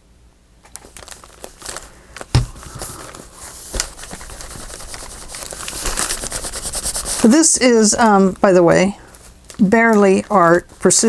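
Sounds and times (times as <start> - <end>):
paper rustling and crinkling: 0.7 - 11.0
sharp knock: 2.4 - 2.8.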